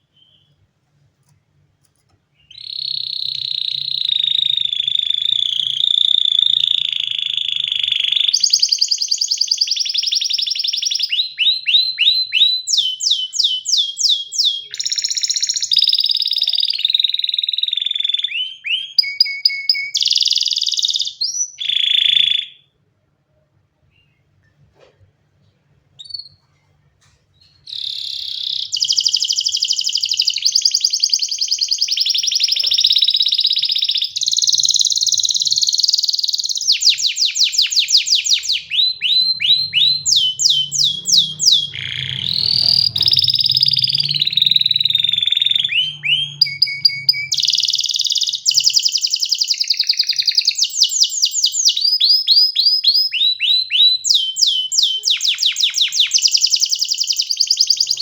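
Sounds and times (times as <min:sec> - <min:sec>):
canary singing: 0:02.3 - 0:22.7, 0:27.4 - 0:58.0.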